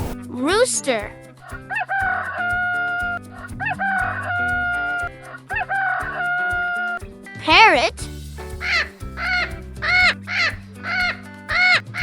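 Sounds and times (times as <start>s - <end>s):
background music: 0.0s - 12.0s
rooster crowing: 1.7s - 3.0s, 3.7s - 6.9s.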